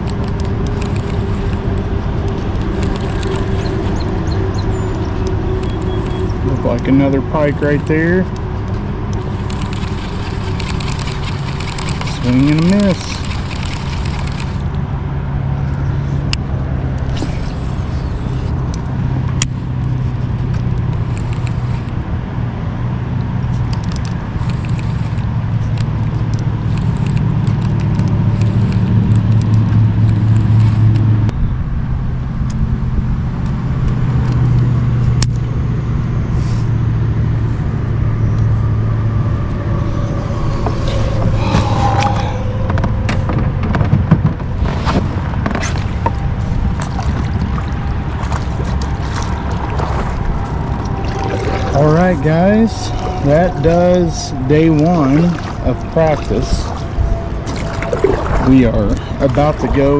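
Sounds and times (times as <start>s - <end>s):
low motor hum: 0.0s - 59.9s
sharp clicks: 4.9s - 6.4s, 7.8s - 14.8s.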